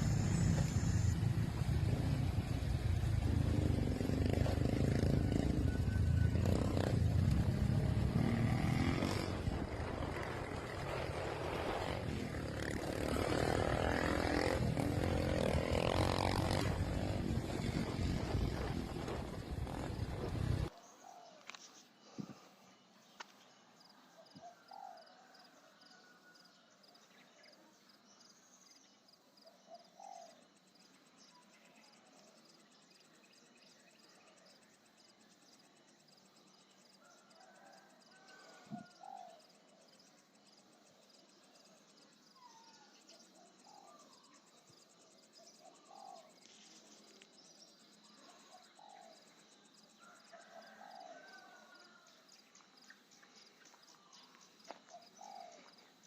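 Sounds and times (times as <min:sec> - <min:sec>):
cricket trilling: 0:29.4 - 0:56.0.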